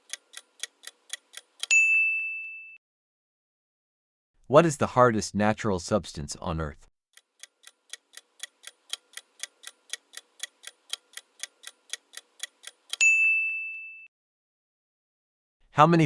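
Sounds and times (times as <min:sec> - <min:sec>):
clock ticking: 0:00.0 - 0:01.7, 0:07.2 - 0:13.0
bell ding: 0:01.7 - 0:02.8, 0:13.0 - 0:14.1.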